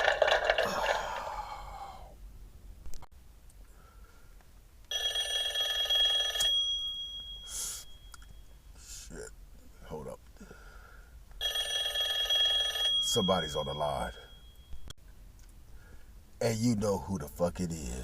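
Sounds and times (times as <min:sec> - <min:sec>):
telephone ringing: 0:04.9 - 0:08.6, 0:11.4 - 0:14.9.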